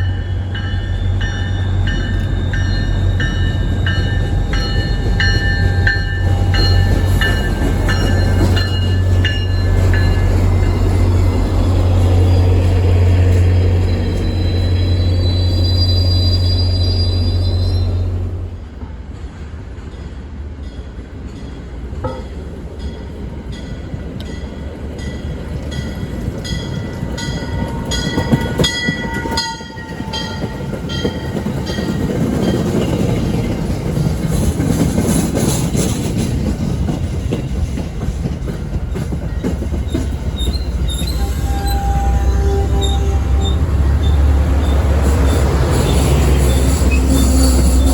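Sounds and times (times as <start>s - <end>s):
train rumble: 0.0s - 47.9s
high wheel squeal: 0.9s - 18.2s, 39.9s - 47.9s
train wheels clicking over rail joints: 1.3s - 16.3s, 18.7s - 42.2s.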